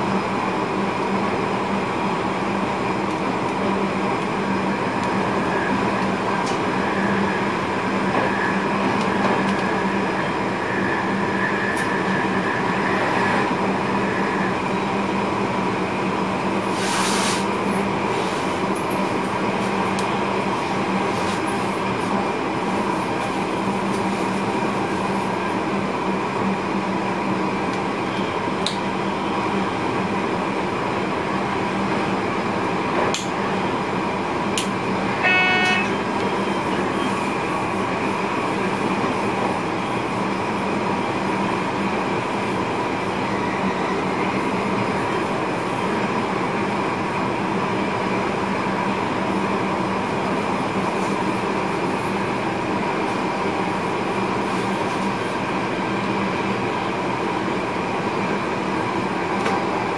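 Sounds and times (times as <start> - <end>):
electric train running: 30.9 - 59.9
short signal tone: 35.2 - 37.2.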